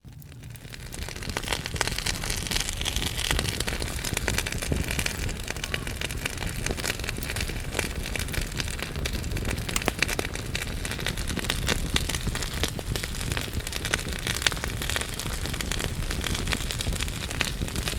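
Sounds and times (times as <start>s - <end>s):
fire hiss and rumble: 0.0s - 17.9s
logs crackling and popping: 0.0s - 17.9s.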